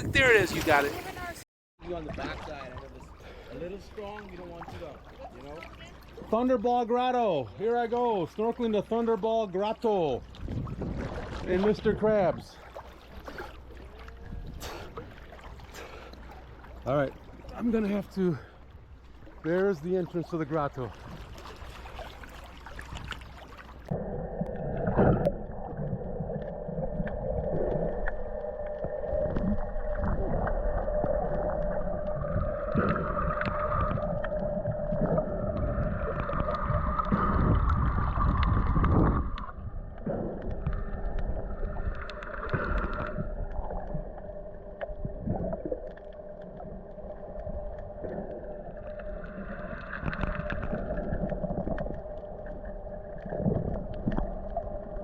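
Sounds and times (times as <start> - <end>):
water gurgling underwater: 10.3 - 16.0, 20.9 - 55.0.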